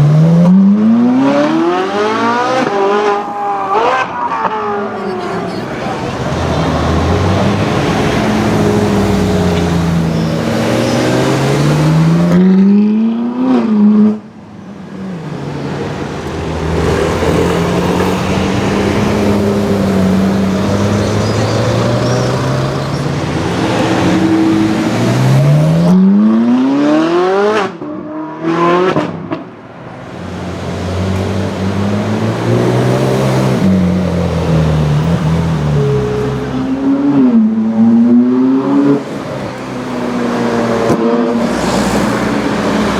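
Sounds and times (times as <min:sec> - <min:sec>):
sports car engine revving: 0:16.5 - 0:27.8.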